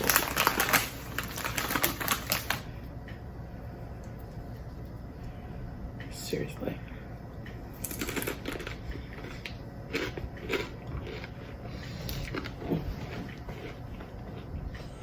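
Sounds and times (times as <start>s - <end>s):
person chewing crunchy chips: 0.0s - 2.7s, 7.7s - 15.0s.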